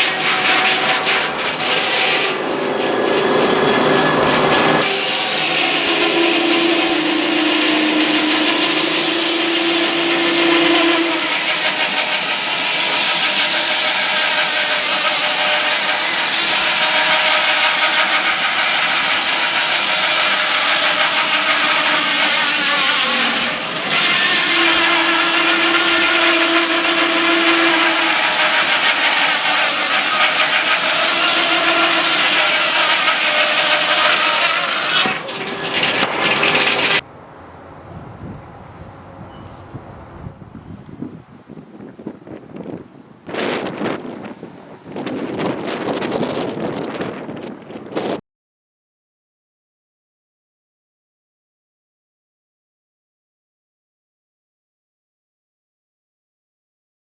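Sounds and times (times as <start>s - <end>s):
saw rushing noise: 0.0s - 37.6s
humming tone: 2.3s - 12.3s.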